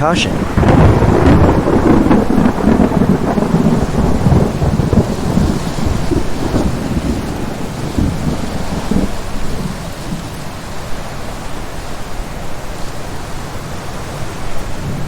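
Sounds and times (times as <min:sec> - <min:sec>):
thunder rumbling: 0:00.0 - 0:11.7
heavy rain: 0:00.0 - 0:15.0.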